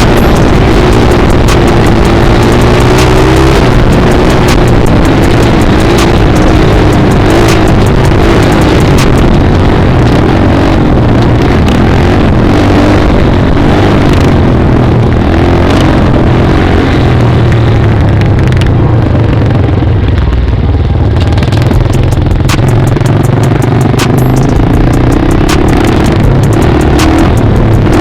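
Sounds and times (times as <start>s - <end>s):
sharp clicks: 0.0s - 9.6s, 21.7s - 28.0s
wind noise: 0.0s - 20.0s
dirt bike engine running: 0.0s - 28.0s.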